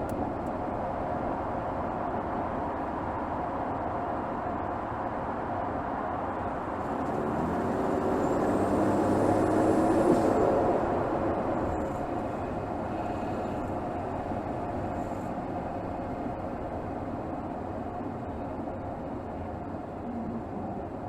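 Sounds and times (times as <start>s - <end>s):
car engine running: 6.7s - 21.0s.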